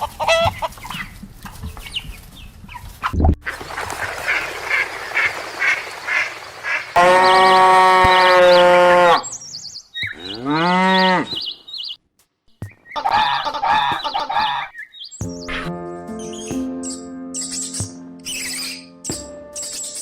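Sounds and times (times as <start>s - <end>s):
small birds chirping: 0.0s - 20.0s
cow mooing: 7.0s - 9.3s, 10.2s - 11.4s.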